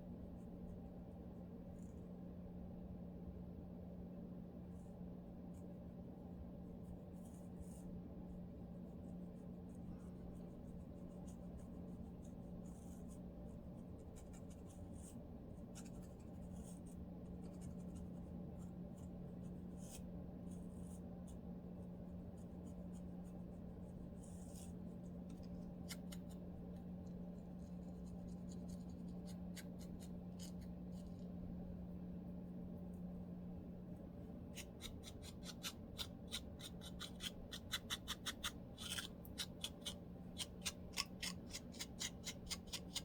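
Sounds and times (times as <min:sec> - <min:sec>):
steady low hum: 0:00.0 - 0:43.0
comb scratching through hair: 0:34.5 - 0:43.0.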